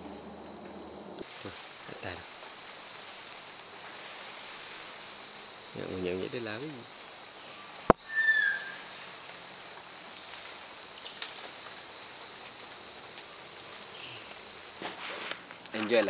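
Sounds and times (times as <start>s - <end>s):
insects droning: 0.0s - 16.0s
whistled bird call: 8.0s - 8.9s.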